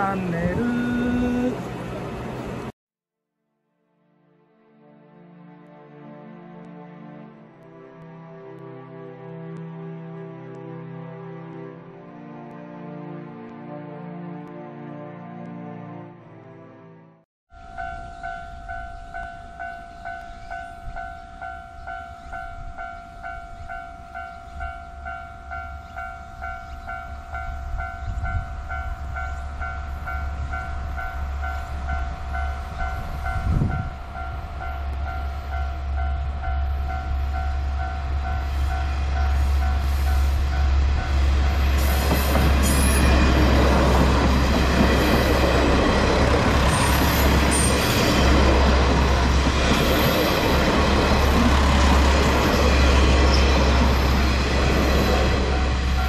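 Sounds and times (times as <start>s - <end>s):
diesel train passing: 0.0s - 2.7s, 17.5s - 56.0s.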